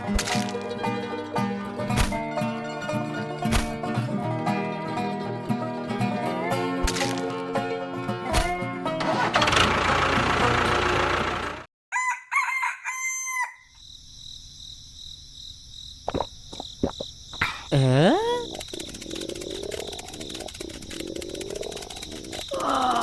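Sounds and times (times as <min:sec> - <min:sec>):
rooster crowing: 0:11.9 - 0:13.8
sharp clicks: 0:18.4 - 0:23.0.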